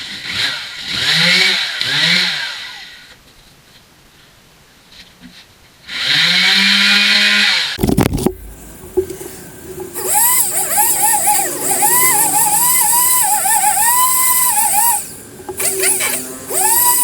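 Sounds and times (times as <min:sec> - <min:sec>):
power sander whining: 0:08.3 - 0:17.0.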